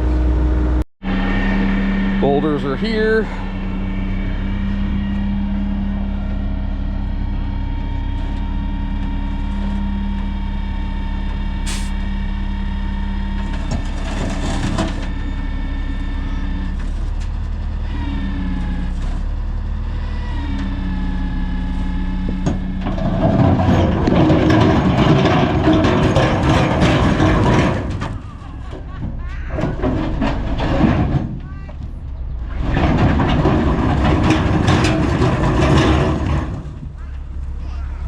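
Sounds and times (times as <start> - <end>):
heavy truck engine running: 0.0 - 38.0
rough clattering noise: 13.4 - 15.1, 22.2 - 37.6.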